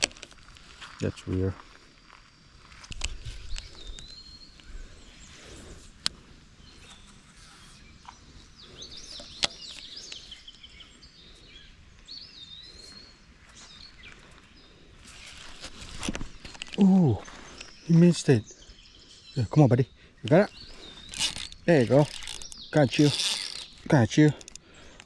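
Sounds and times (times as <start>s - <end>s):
outdoor background noise: 0.0s - 25.0s
small birds chirping: 0.0s - 25.0s
sharp clicks: 20.3s - 25.0s.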